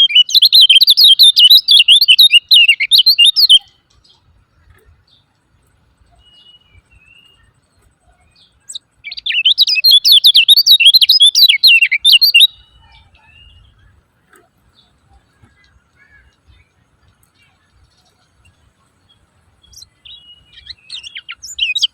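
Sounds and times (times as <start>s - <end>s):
faint short bird calls: 6.0s - 18.5s.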